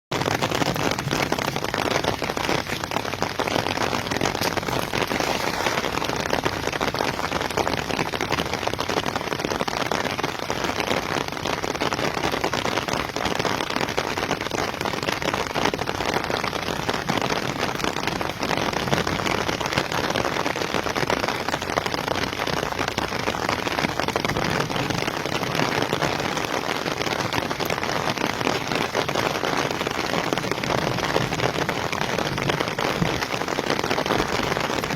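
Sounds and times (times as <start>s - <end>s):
steady rain falling: 0.1s - 34.9s.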